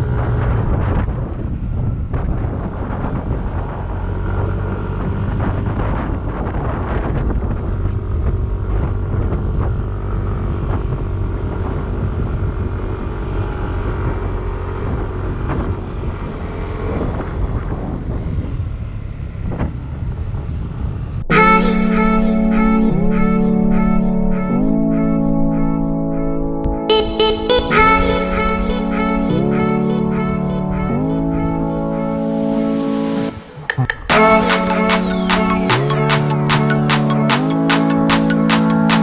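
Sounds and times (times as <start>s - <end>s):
wind buffeting microphone: 0.0s - 21.3s
guitar music: 21.3s - 39.0s.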